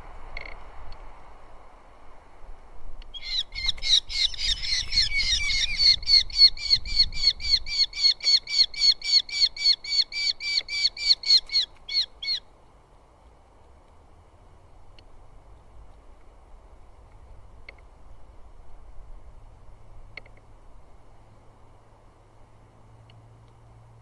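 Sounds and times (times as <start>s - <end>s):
bird calling rapidly: 3.1s - 12.5s.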